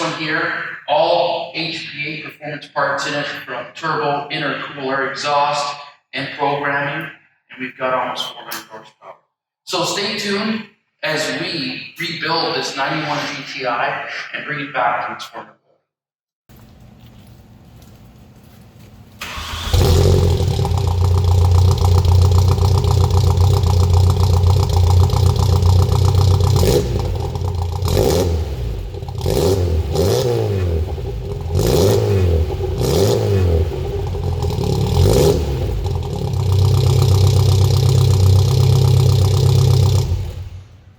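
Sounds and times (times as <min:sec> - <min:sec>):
car engine revving: 0:19.2 - 0:40.8
car engine cranking and starting: 0:19.2 - 0:40.9
car engine idling: 0:19.2 - 0:40.9.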